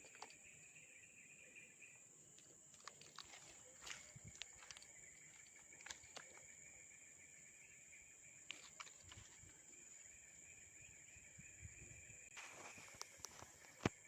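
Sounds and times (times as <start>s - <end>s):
high insect drone: 0.0s - 14.0s.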